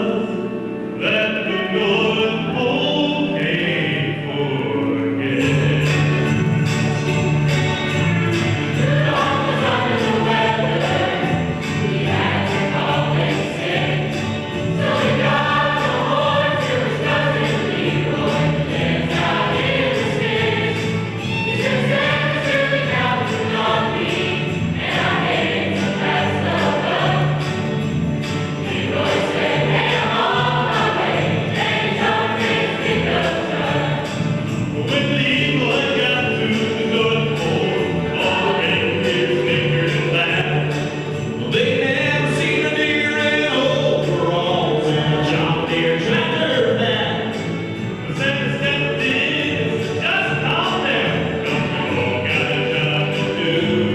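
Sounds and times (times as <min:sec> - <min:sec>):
choir singing: 0:00.0 - 0:53.9.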